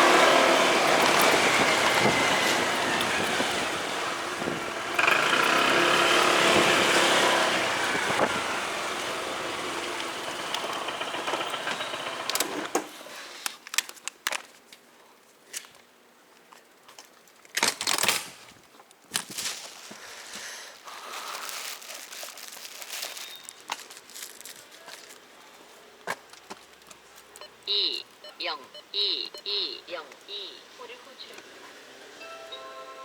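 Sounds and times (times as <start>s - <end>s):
motorcycle engine: 0.0s - 13.0s.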